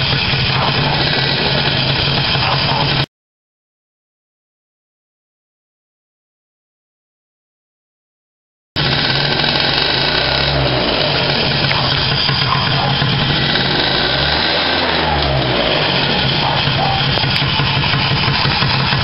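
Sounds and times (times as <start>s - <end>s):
scooter engine running: 0.0s - 3.1s, 8.8s - 19.0s.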